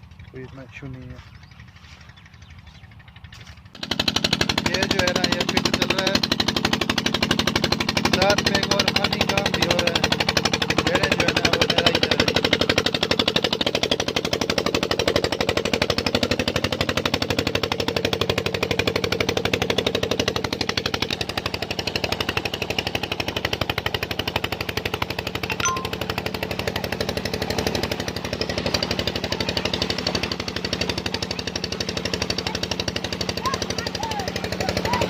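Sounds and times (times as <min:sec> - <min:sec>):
pump engine running: 0:00.0 - 0:35.0.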